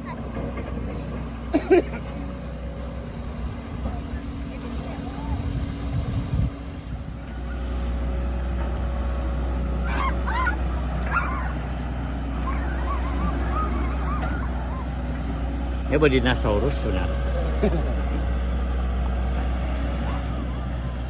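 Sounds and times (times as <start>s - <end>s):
diesel engine droning: 0.0s - 21.0s
waterfowl honking: 9.8s - 15.4s.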